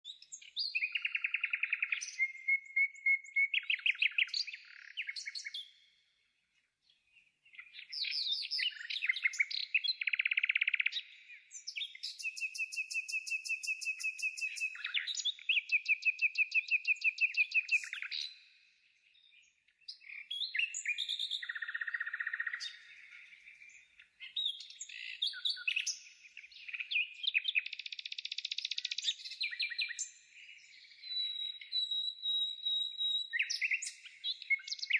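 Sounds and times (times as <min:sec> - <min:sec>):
bird trilling and chirping: 0:07.5 - 0:18.4, 0:19.9 - 0:30.1, 0:30.7 - 0:34.9.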